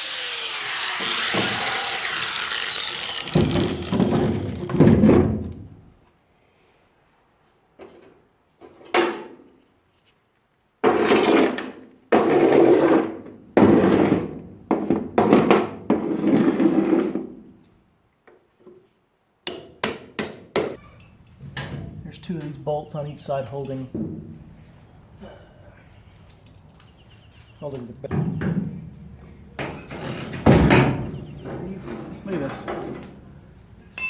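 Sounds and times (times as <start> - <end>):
power tool bursts on bolts: 0.0 - 4.8, 29.8 - 30.5.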